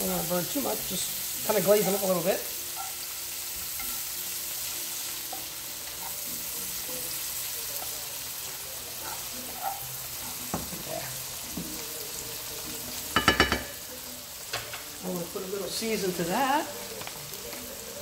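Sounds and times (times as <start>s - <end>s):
onions sizzling in fat: 0.0s - 18.0s.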